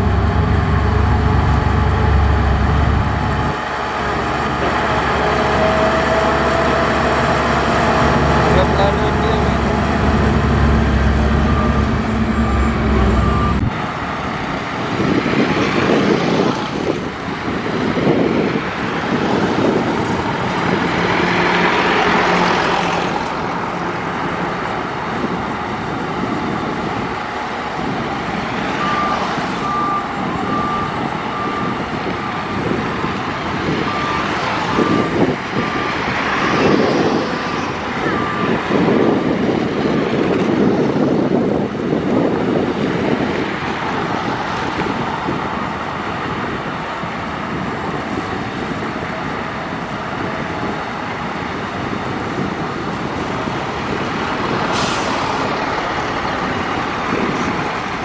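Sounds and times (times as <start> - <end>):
steady low engine hum: 0.0 - 3.6
heavy diesel engines working: 0.0 - 58.0
reversing alarm beeping: 8.4 - 13.7, 28.8 - 32.4, 33.8 - 38.9.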